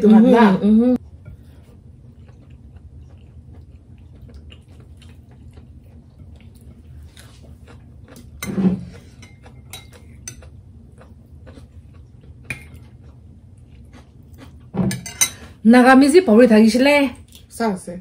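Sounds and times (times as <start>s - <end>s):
chewing: 1.0s - 14.8s.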